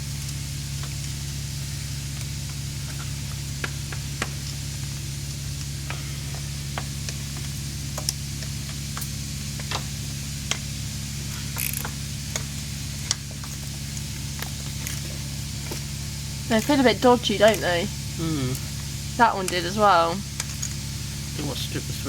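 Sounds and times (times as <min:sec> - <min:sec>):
steady low hum: 0:00.0 - 0:22.0
small parts clicking and tapping: 0:02.1 - 0:15.9, 0:18.6 - 0:20.8.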